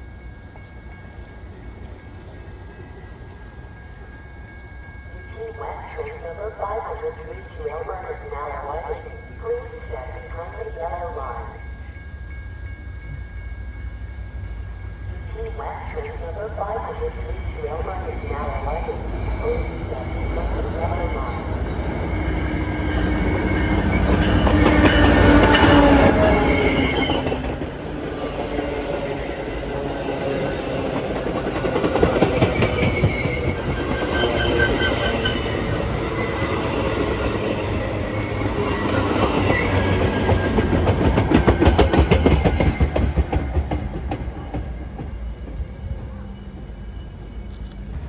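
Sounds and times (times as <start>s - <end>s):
train wheels clicking over rail joints: 39.1s - 45.7s.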